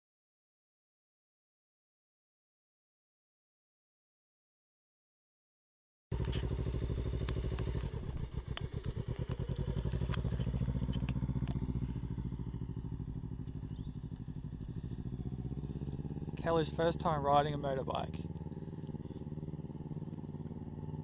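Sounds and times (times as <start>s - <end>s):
motorcycle engine running: 6.1s - 21.0s
light clicks: 7.2s - 11.9s.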